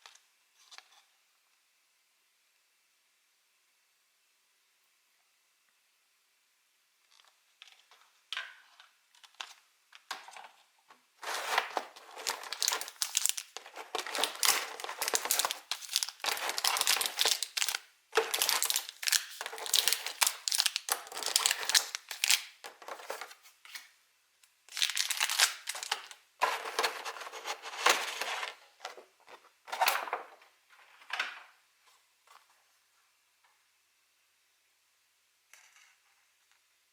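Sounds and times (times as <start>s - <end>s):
plastic packaging crinkling: 11.2s - 23.9s, 24.7s - 28.6s.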